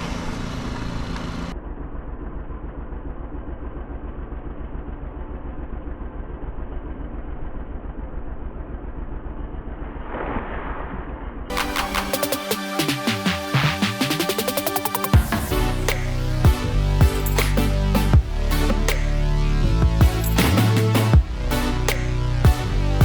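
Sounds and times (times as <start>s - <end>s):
engine idling: 0.0s - 9.9s.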